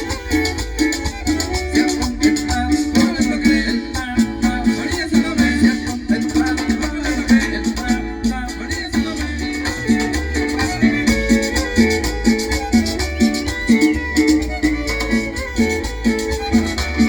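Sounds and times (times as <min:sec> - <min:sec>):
string melody: 0:00.0 - 0:04.9, 0:09.1 - 0:17.0
bass line: 0:00.0 - 0:17.0
guitar: 0:00.0 - 0:17.0
shaker rhythm: 0:00.0 - 0:17.0
upbeat latin dance music: 0:00.0 - 0:17.0.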